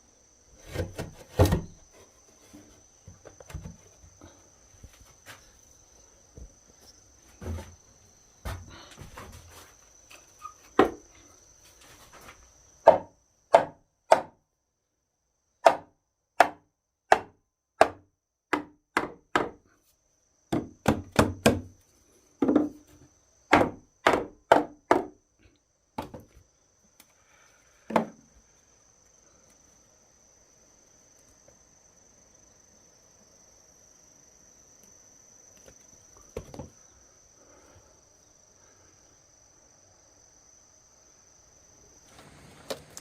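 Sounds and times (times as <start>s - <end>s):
high insect trill: 0.0s - 16.2s, 19.5s - 43.0s
wood being chopped: 12.8s - 14.4s, 15.6s - 19.6s, 20.5s - 21.7s, 23.5s - 25.1s.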